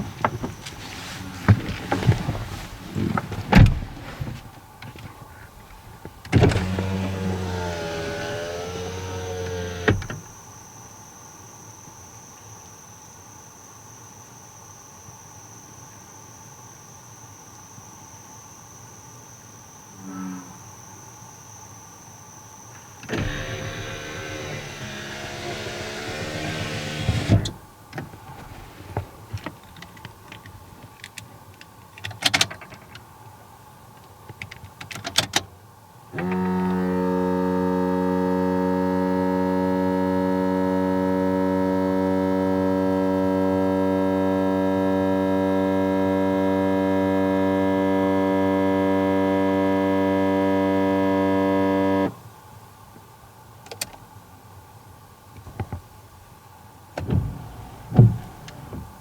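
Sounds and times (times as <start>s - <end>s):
electric motor whir: 6.5s - 10.1s, 23.1s - 27.6s, 57.0s - 59.0s
loud steady low hum: 23.1s - 27.6s.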